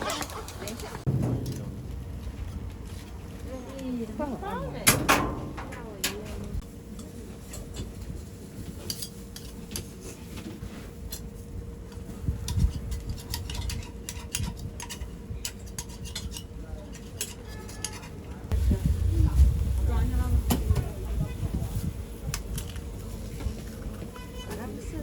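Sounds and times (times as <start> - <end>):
metal utensils clinking on pans: 12.5 - 18.2.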